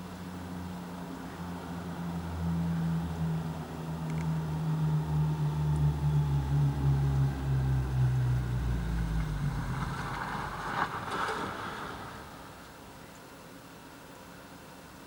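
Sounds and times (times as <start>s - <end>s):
car engine humming: 0.0s - 13.3s
rushing noise: 4.1s - 13.2s.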